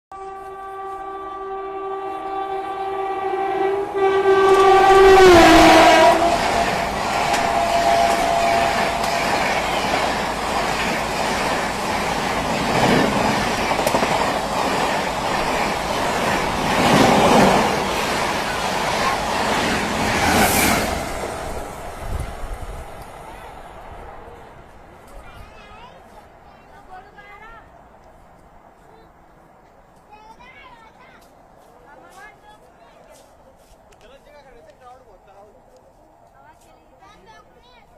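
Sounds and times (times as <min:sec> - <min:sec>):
locomotive horn blast: 0:00.1 - 0:10.2
train wheels clattering over rails: 0:04.4 - 0:23.2.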